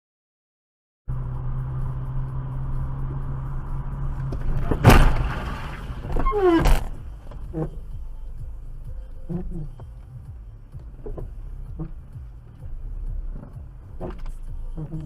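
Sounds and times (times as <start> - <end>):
car running on road: 1.1 - 15.0
loud crash-like impact: 4.4 - 7.0.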